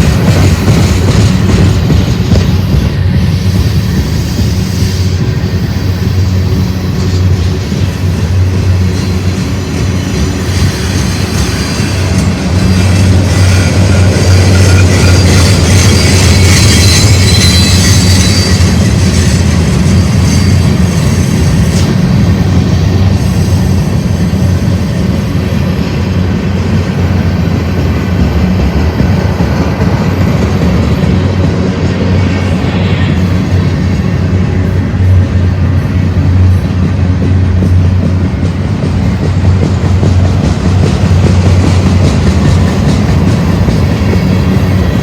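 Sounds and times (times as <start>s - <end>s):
freight train wheels on rails: 0.0s - 45.0s
high-pitched wheel squeal: 10.1s - 22.1s.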